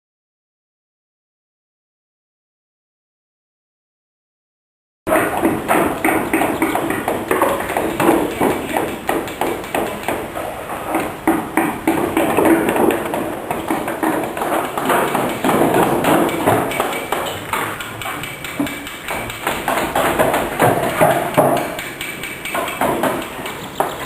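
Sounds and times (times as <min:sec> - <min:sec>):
wooden mallets striking chisels: 0:05.1 - 0:24.0.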